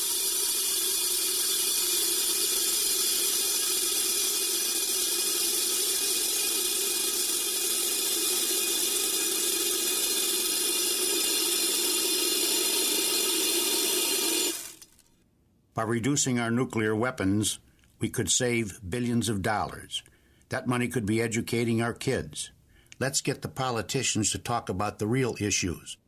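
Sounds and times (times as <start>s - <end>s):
bbs pouring into a container: 0.0s - 15.2s.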